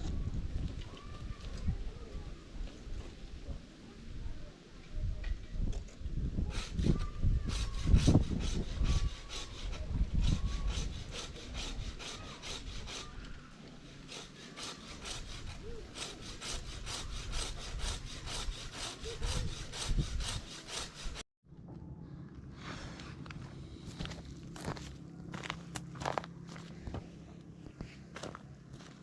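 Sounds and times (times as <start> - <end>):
hand saw cutting wood: 6.5 - 21.2.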